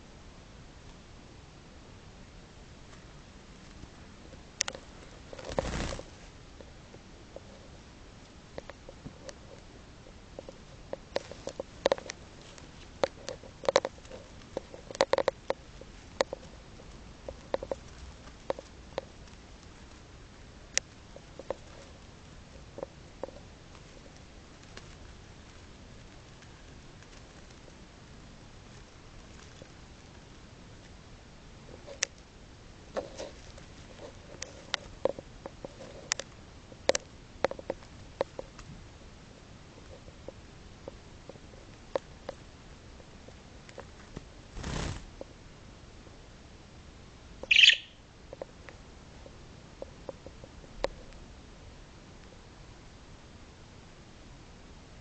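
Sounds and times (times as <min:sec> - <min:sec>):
budgie pecking and nibbling: 0:02.8 - 0:32.3, 0:32.9 - 0:38.8, 0:47.4 - 0:51.2
budgerigar tapping and pecking: 0:47.4 - 0:48.0.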